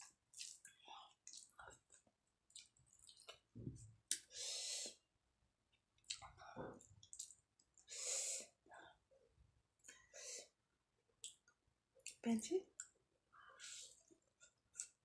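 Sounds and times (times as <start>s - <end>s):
wet chewing and mouth clicks: 0.0s - 4.3s, 6.0s - 7.9s, 11.2s - 12.2s, 13.9s - 15.0s
breathing: 7.9s - 9.0s, 9.9s - 10.6s, 13.4s - 14.0s.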